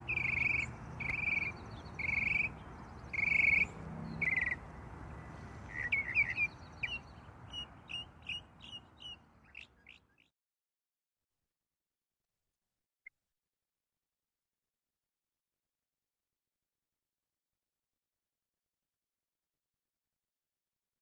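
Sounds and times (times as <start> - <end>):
bird raspy call: 0.0 - 10.2
bird chirping: 0.0 - 10.3.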